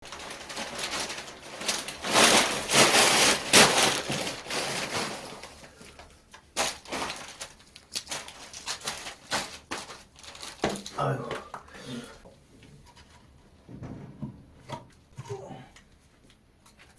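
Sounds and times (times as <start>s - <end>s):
firewood rustling and cracking: 0.0s - 11.2s.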